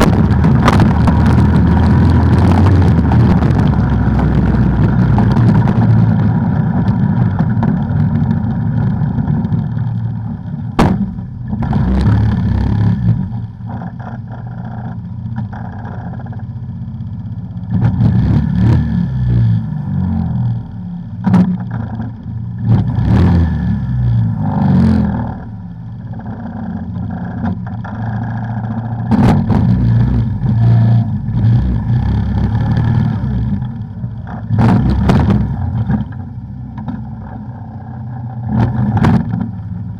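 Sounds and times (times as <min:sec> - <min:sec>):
sharp knocks and clatter: 0:00.0 - 0:10.0, 0:10.7 - 0:12.1, 0:21.2 - 0:22.9, 0:32.4 - 0:37.4, 0:38.5 - 0:39.9
atv engine revving: 0:00.0 - 0:16.5, 0:17.5 - 0:39.9.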